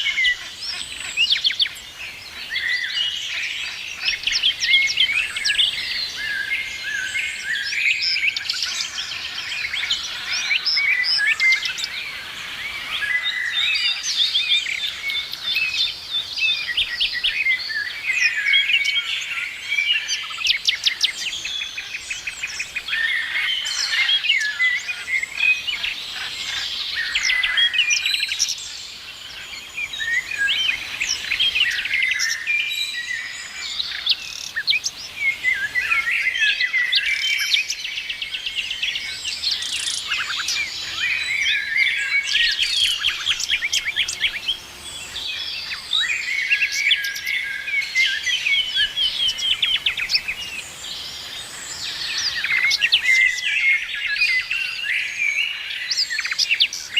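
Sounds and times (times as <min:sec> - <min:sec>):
songbirds singing and chirping: 0:00.0 - 0:56.9.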